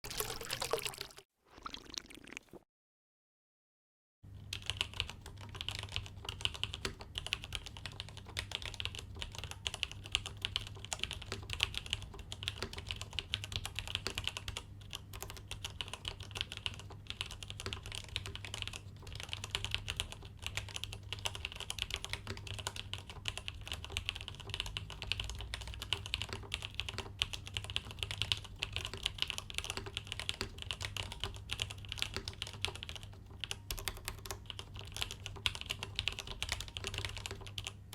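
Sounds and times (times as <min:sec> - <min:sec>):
fast typing on mechanical keyboard: 0:04.4 - 0:37.9.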